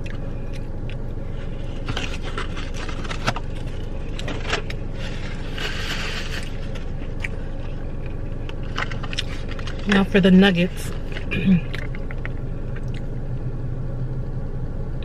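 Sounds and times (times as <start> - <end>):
steady low hum: 0.0 - 15.0
paper packaging rustling: 1.4 - 7.2.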